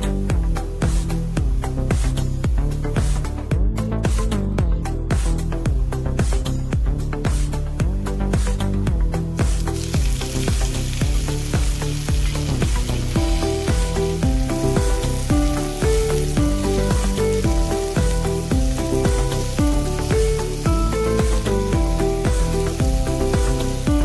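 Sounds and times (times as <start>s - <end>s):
vegetables sizzling in frying pan: 0.0s - 3.3s, 9.4s - 24.0s
background music with steady beat: 0.0s - 24.0s.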